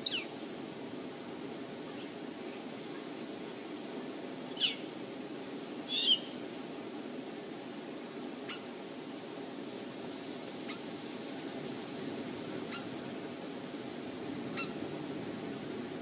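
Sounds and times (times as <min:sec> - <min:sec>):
wind on microphone: 0:10.8 - 0:16.0
high bird calls: 0:12.7 - 0:13.1, 0:14.5 - 0:14.9.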